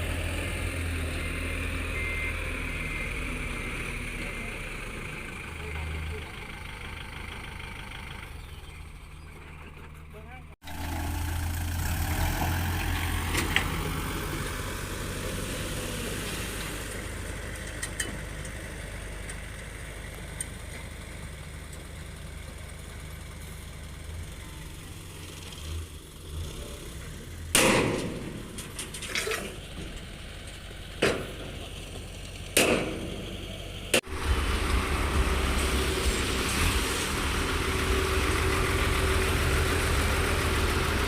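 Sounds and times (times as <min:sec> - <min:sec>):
diesel engine running: 0:00.0 - 0:41.0
loud metallic clanks: 0:27.5 - 0:30.2, 0:32.5 - 0:34.2.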